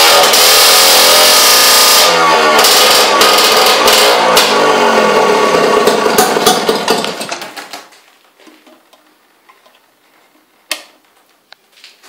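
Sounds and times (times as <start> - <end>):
outboard motor stopping: 2.3 - 7.3.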